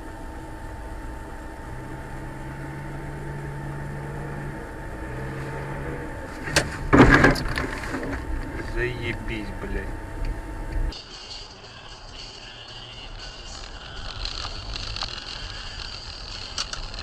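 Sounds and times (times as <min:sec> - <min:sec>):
car engine and road noise: 0:00.0 - 0:17.0
faint hum and tone: 0:00.0 - 0:17.0
car collision crash: 0:06.3 - 0:08.3.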